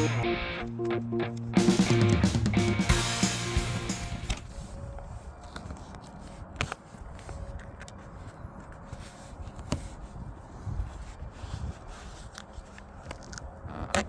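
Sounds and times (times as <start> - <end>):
handling and scraping noises: 4.0 - 14.0.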